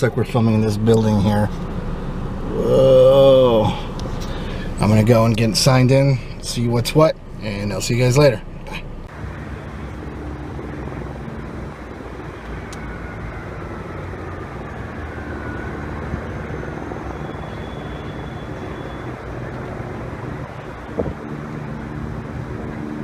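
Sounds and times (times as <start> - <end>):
low hum: 0.0 - 23.0
helicopter engine and rotor: 9.2 - 23.0.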